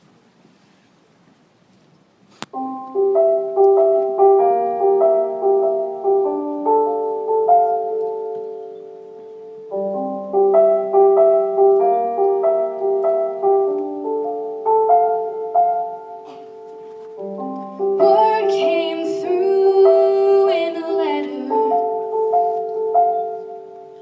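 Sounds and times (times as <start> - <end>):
gentle piano chords: 2.5 - 24.0
woman singing with vibrato: 18.0 - 22.2.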